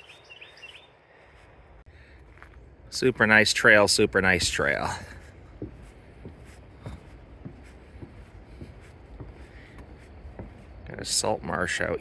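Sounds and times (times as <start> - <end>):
faint footsteps on trail: 0.0 - 12.0.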